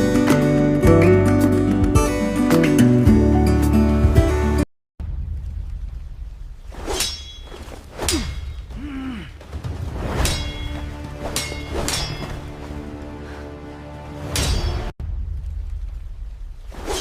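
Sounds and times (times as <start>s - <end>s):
sharp metallic clangs ringing: 6.9s - 8.7s, 10.2s - 12.6s, 14.3s - 14.9s.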